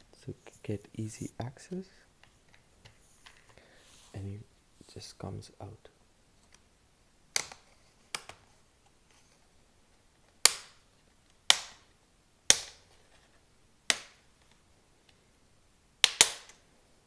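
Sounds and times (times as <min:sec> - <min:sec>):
plastic clips snapping loose: 0:07.4 - 0:08.4, 0:16.0 - 0:16.6.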